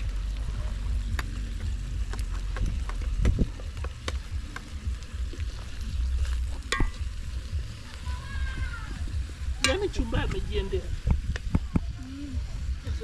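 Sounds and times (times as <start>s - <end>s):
food frying in oil: 0.0s - 13.0s
low steady rumble: 0.0s - 13.0s
wood fire pops and crackles: 0.0s - 13.0s.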